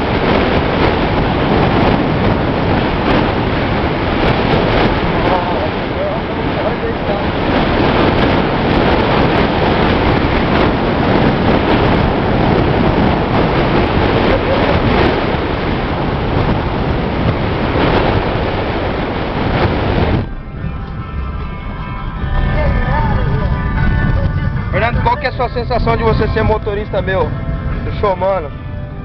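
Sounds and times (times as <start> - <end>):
vehicle road noise: 0.0 - 29.0
wind buffeting microphone: 0.0 - 29.0.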